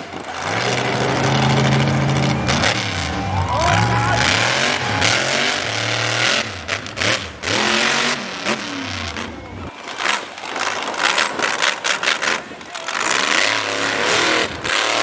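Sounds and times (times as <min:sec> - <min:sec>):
monster truck engine revving: 0:00.0 - 0:15.0
loud rushing noise: 0:00.1 - 0:07.6.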